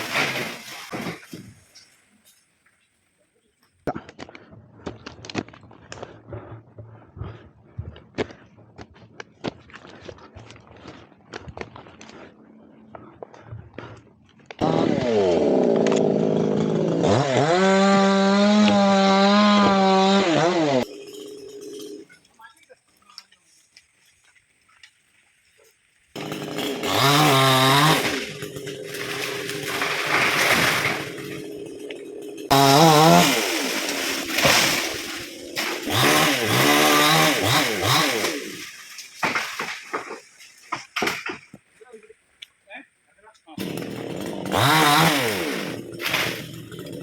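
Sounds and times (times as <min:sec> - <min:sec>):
chainsaw cutting wood: 0:00.0 - 0:01.8, 0:14.4 - 0:22.2, 0:26.1 - 0:41.6, 0:43.6 - 0:47.0.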